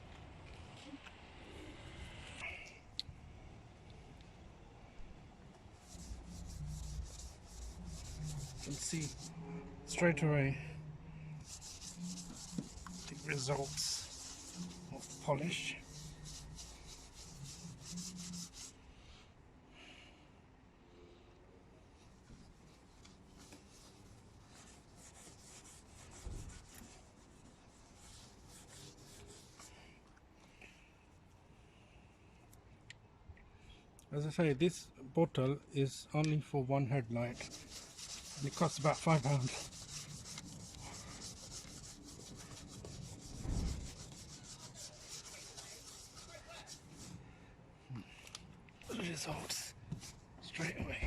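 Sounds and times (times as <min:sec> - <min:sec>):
cloth rubbing on plastic: 0:05.8 - 0:18.8, 0:22.4 - 0:29.8, 0:37.2 - 0:47.2.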